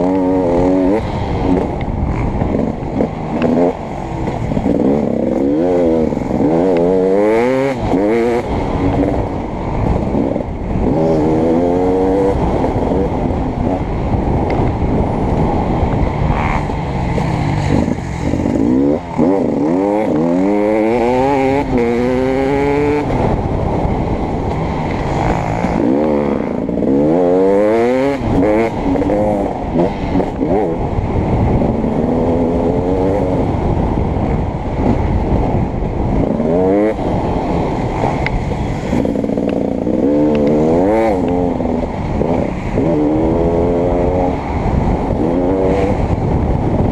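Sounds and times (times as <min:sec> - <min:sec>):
dirt bike engine revving: 0:00.0 - 0:46.9
wind and track noise: 0:00.0 - 0:46.9.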